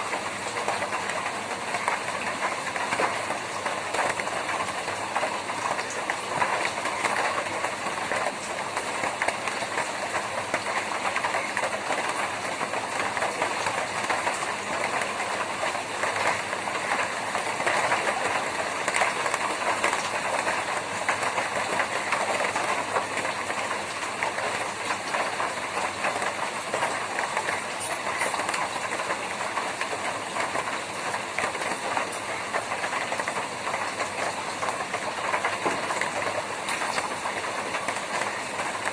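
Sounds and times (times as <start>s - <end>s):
rain on a tin roof: 0.0s - 38.9s.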